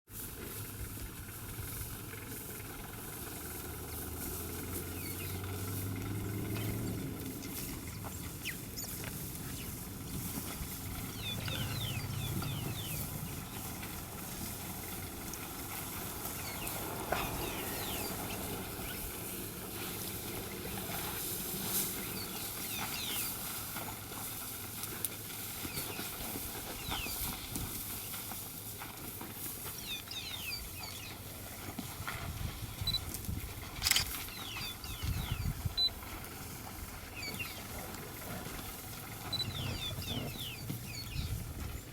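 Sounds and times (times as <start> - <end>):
low hum: 0.2 - 23.4.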